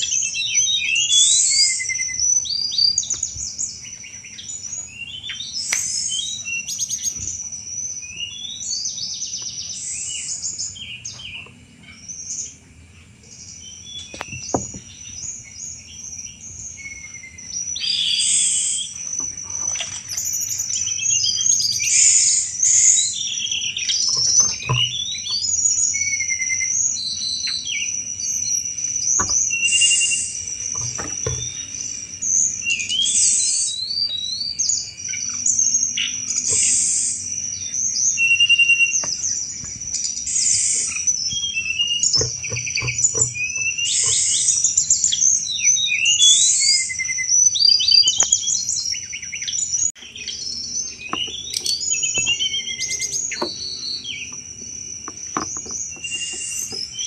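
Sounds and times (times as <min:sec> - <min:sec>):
steady high insect-like tone: 0:00.0 - 0:57.0
bird chattering and whistling: 0:13.6 - 0:57.0.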